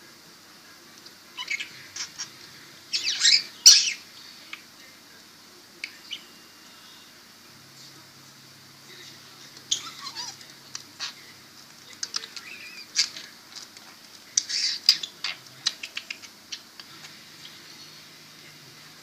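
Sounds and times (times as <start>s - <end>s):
budgerigar chattering: 14.4s - 16.7s.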